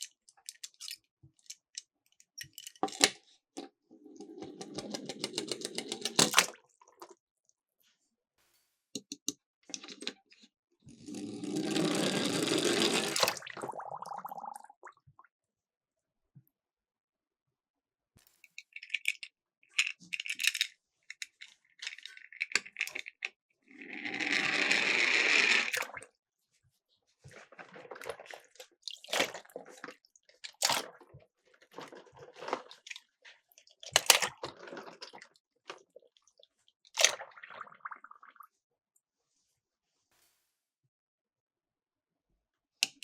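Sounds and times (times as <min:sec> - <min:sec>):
splashes into water: 0:13.1 - 0:14.9, 0:30.6 - 0:31.0, 0:37.0 - 0:38.4
toy cars clattering: 0:18.6 - 0:23.3.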